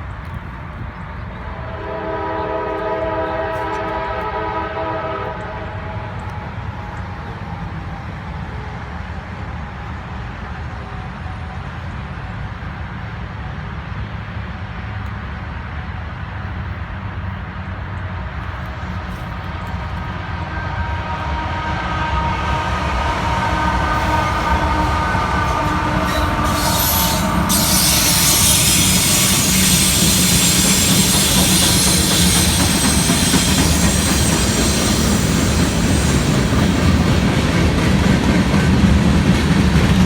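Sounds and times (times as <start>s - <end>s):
train rumbling: 0.0s - 40.0s
locomotive air horn chord: 1.5s - 6.4s, 20.0s - 36.5s.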